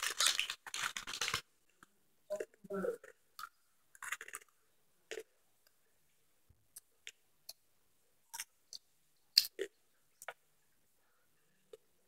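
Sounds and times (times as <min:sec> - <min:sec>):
popcorn being chewed: 0:00.0 - 0:01.9, 0:03.0 - 0:05.3, 0:08.3 - 0:10.4.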